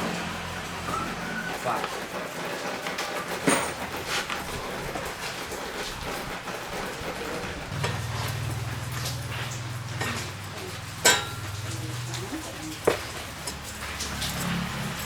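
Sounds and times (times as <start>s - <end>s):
low motor hum: 4.5s - 15.0s.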